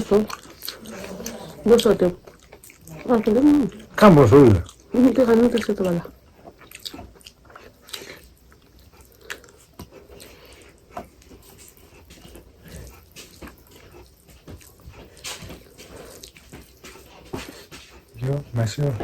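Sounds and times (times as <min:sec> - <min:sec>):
people chewing food: 0:00.0 - 0:19.0
mouth clicks and smacks: 0:02.2 - 0:16.9.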